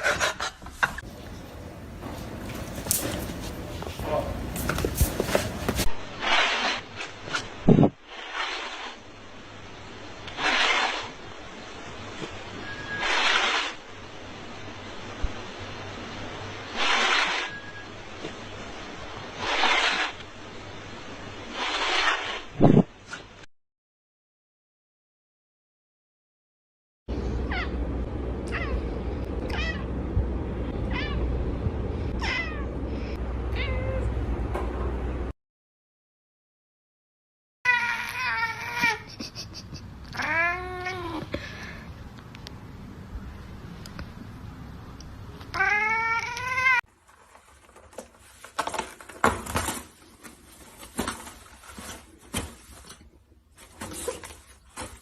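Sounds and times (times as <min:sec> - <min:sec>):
cat meowing: 0:28.5 - 0:28.8, 0:29.4 - 0:29.9, 0:30.9 - 0:31.2, 0:32.2 - 0:32.7, 0:33.5 - 0:34.1, 0:40.1 - 0:41.2, 0:45.5 - 0:46.8.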